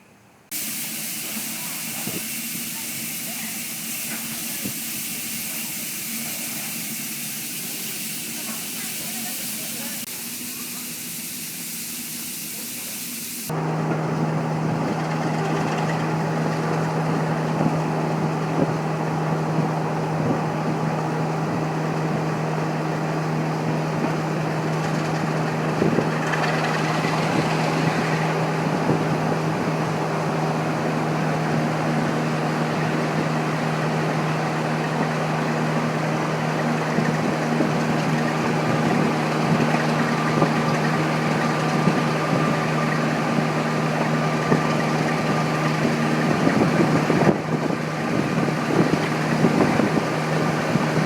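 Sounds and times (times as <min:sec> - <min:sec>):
diesel locomotive engine idling: 0:00.1 - 0:51.0
steam hissing: 0:00.5 - 0:13.6.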